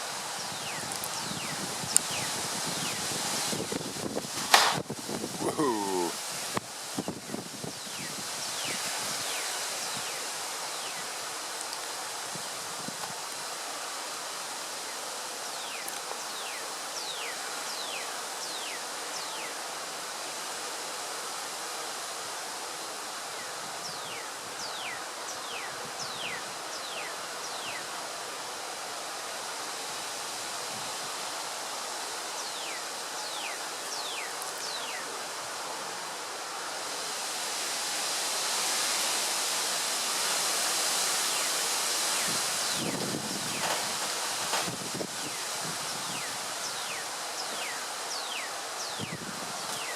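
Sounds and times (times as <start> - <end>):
leaves rustling: 0.0 - 49.9
wind through trees: 0.0 - 49.9.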